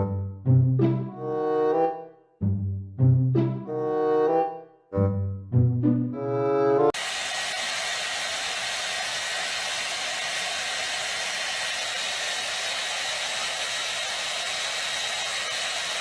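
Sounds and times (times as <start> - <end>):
small blower running: 7.0 - 16.0.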